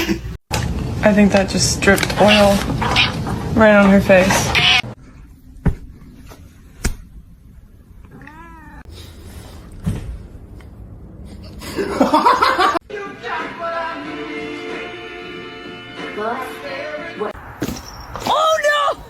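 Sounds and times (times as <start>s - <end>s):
cat meowing: 2.3s - 3.2s, 4.4s - 4.9s, 8.1s - 8.9s.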